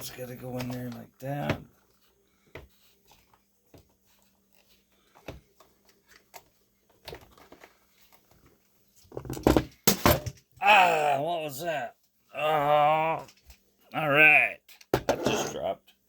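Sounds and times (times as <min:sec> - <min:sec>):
object dropping with clatter: 0:09.1 - 0:10.5.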